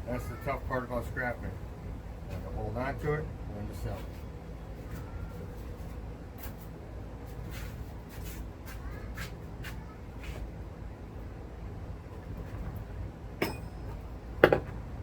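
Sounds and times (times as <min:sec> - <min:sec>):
low steady hum: 0:10.6 - 0:15.0.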